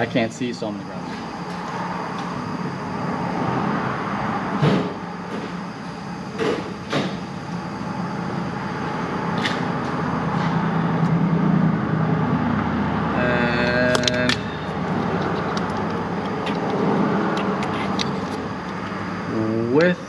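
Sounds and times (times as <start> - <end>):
rumbling background hum: 0.0 - 20.0.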